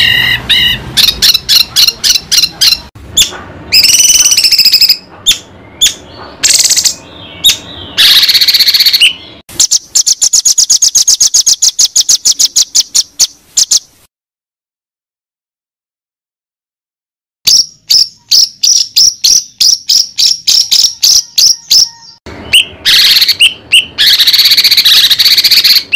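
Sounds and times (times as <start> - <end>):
bird sharp repeated chips: 0.6 - 14.0, 17.5 - 25.9
songbird whistled phrases and trills: 3.8 - 13.8, 17.5 - 25.9.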